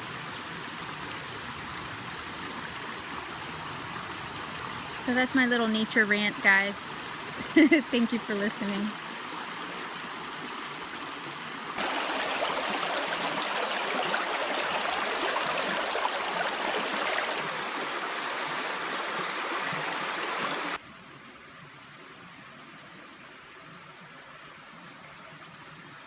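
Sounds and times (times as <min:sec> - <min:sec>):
creek water running: 0:00.0 - 0:26.0.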